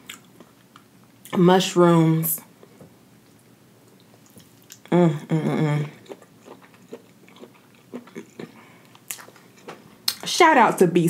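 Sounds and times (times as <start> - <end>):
soft chewing: 2.6 - 4.9, 5.7 - 10.3
person humming mmm: 4.7 - 6.2.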